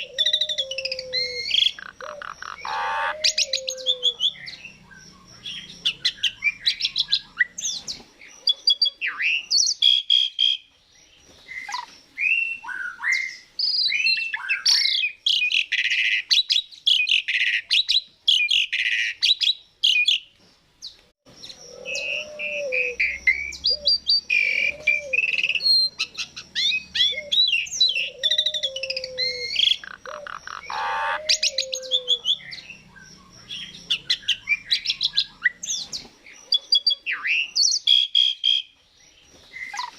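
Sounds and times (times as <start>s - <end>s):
starling singing: 0.0s - 10.6s, 21.3s - 38.8s.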